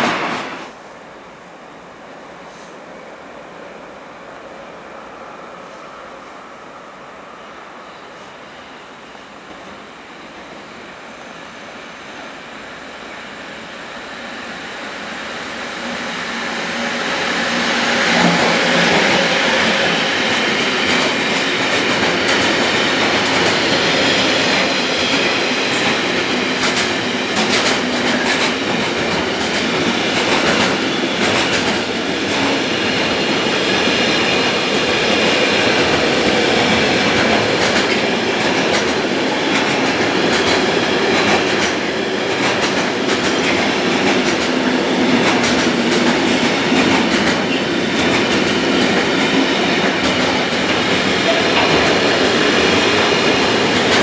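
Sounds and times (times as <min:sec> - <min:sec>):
freight train wheels clacking: 0:12.2 - 0:54.0.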